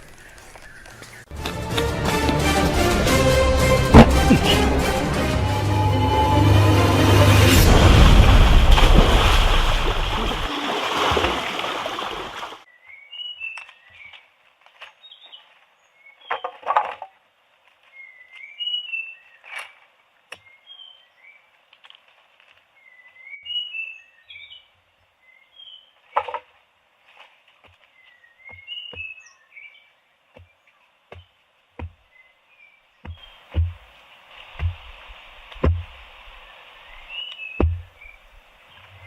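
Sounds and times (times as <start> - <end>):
small birds chirping: 0.0 - 1.4, 27.8 - 35.3, 36.2 - 39.0
music: 1.3 - 8.1.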